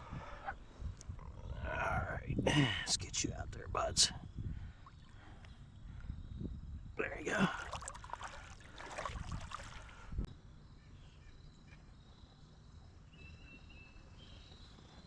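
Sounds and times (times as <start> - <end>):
insects trilling: 0.0 - 15.0
water splashing in a creek: 7.2 - 10.3.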